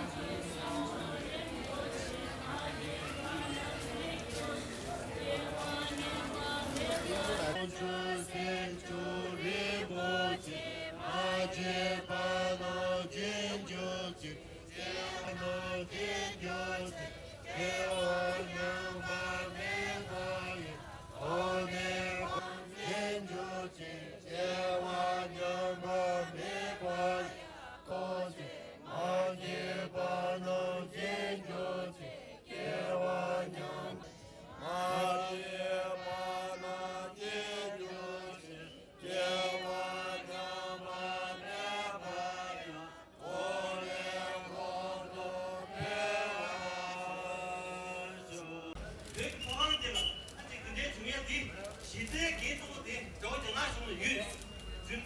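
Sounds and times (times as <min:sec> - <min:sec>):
group chanting in unison: 0:00.0 - 0:48.8.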